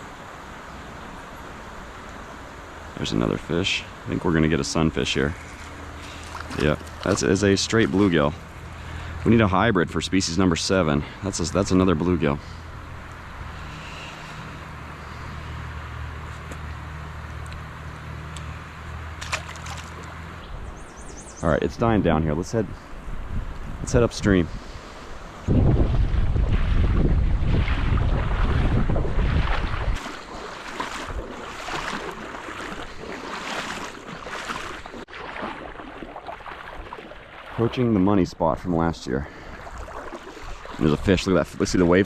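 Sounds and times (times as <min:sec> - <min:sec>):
water splashing and sloshing: 0:04.7 - 0:09.4, 0:18.3 - 0:21.2, 0:24.8 - 0:38.2, 0:39.2 - 0:42.0
wind buffeting microphone: 0:20.5 - 0:37.8
water rushing over spillway: 0:27.5 - 0:37.9.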